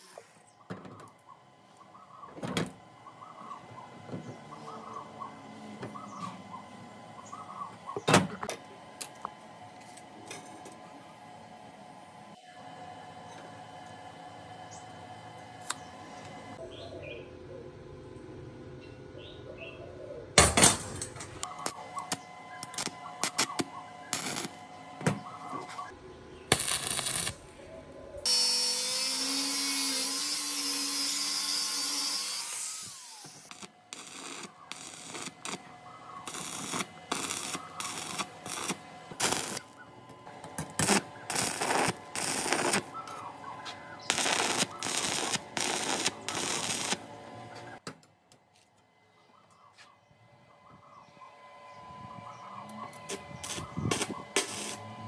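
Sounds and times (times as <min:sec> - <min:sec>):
power tool motor running: 0:21.6 - 0:25.8, 0:28.3 - 0:43.2, 0:44.0 - 0:47.8, 0:52.9 - 0:55.0.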